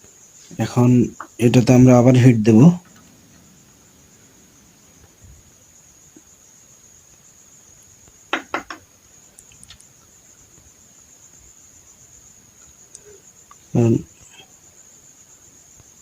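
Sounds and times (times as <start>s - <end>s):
faint ticks: 9.2s - 11.5s, 12.5s - 14.5s, 15.7s - 16.0s
sharp clicks: 9.4s - 9.9s.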